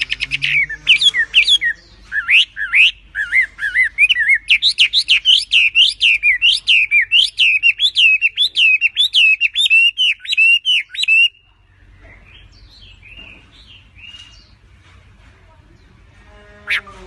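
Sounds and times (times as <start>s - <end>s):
bird singing whistled notes: 0.0s - 11.4s.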